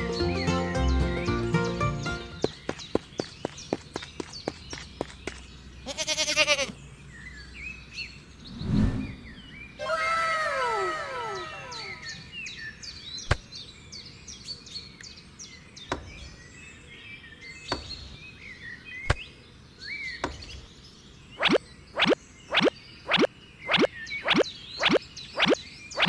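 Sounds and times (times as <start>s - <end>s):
small birds chirping: 0.0s - 10.6s, 11.2s - 26.0s
falling zips: 21.4s - 26.0s.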